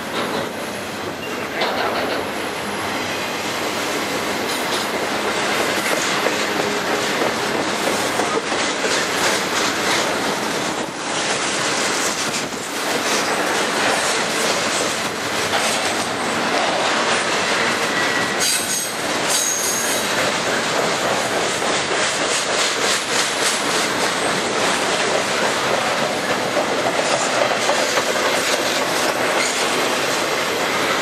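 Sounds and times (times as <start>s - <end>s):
freight train wheels rolling: 0.0s - 31.0s
high-pitched wheel squeal: 17.9s - 20.1s.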